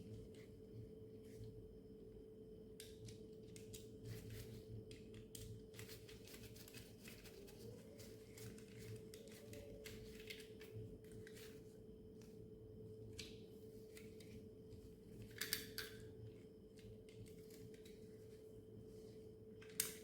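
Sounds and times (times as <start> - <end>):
faint hum: 0.0 - 20.0
plastic toy parts clicking: 15.2 - 16.0.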